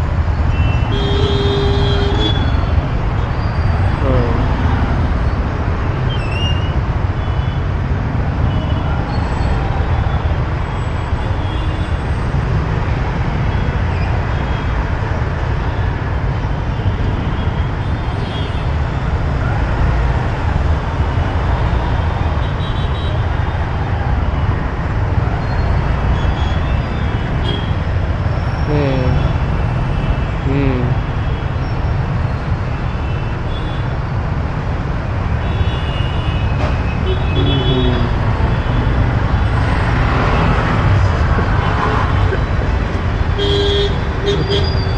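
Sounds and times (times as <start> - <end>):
city traffic rumble: 0.0 - 44.9.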